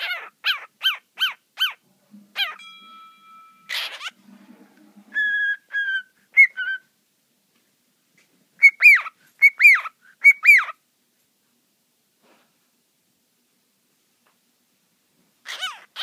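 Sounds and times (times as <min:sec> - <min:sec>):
cockatiel whistling: 0:05.1 - 0:06.9, 0:08.6 - 0:10.8.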